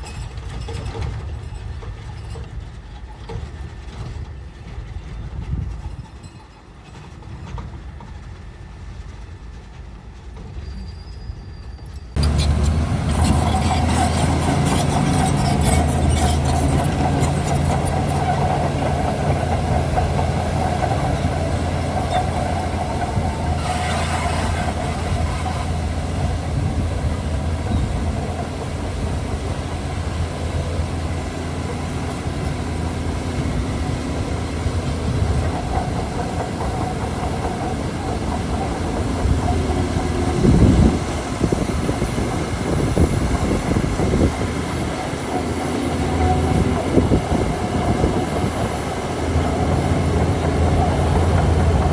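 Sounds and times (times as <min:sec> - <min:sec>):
bulldozer diesel engine drone: 0:12.1 - 0:51.9.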